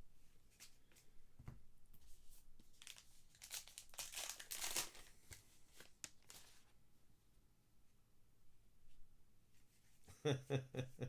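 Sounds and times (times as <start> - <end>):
wrappers crinkling and tearing: 2.7 - 6.7.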